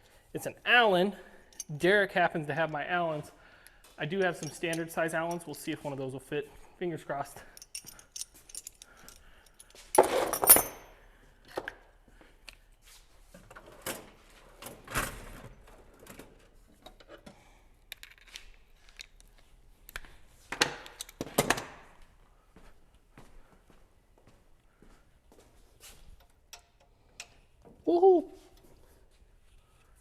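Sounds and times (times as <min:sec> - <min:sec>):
metal hand tools clinking: 0:01.5 - 0:01.9, 0:04.2 - 0:05.6, 0:07.4 - 0:10.9.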